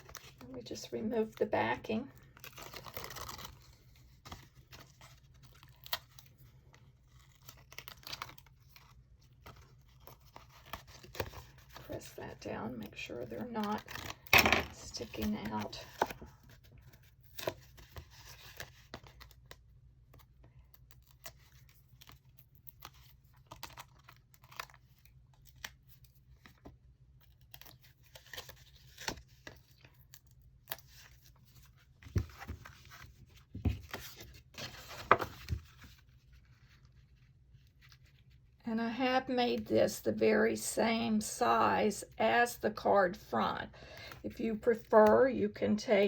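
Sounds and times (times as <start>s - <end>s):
paper rustling: 20.9s - 38.6s.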